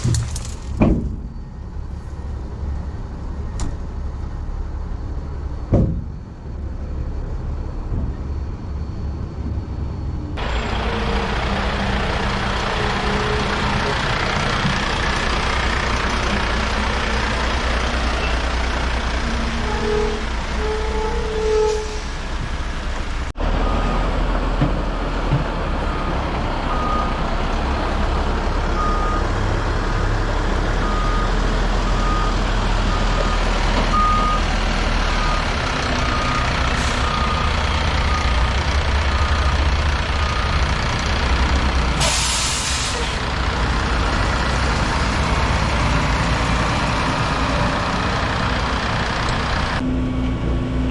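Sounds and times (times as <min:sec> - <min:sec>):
diesel truck engine running: 0:09.8 - 0:50.9
air brake hiss: 0:42.0 - 0:43.2.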